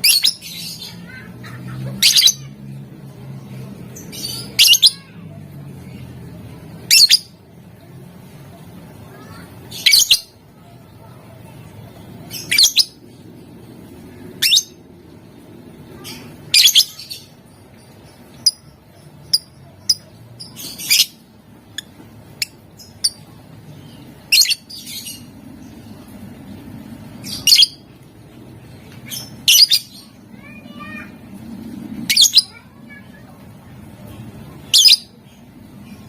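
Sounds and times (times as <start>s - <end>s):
lovebird chirping and squawking: 0.0s - 2.7s, 4.0s - 5.2s, 6.8s - 7.4s, 9.1s - 10.4s, 11.6s - 13.2s, 14.2s - 15.0s, 15.9s - 28.1s, 28.7s - 31.0s, 31.9s - 33.3s, 34.6s - 36.0s.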